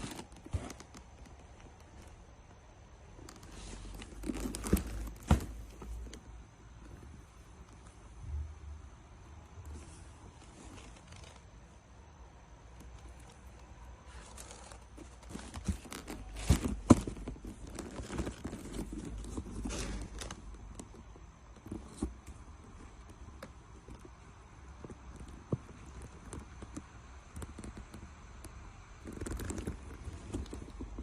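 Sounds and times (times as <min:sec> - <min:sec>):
rustling and crinkling: 0:00.0 - 0:08.4, 0:09.4 - 0:31.0.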